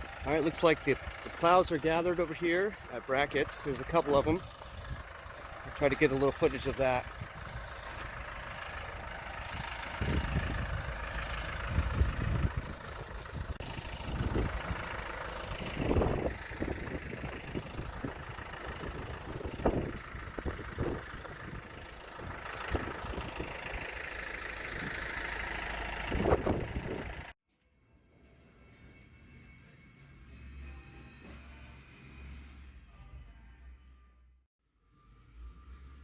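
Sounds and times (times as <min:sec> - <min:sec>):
truck engines idling: 0:00.0 - 0:27.4, 0:28.6 - 0:34.0, 0:35.0 - 0:36.0
wind rumbling on microphone: 0:09.5 - 0:14.9, 0:15.5 - 0:23.6, 0:26.1 - 0:27.2.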